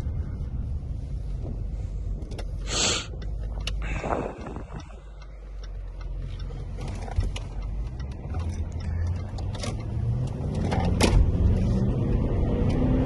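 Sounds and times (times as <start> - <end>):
diesel engine running: 0.0 - 12.1
sharp clicks: 2.2 - 11.0.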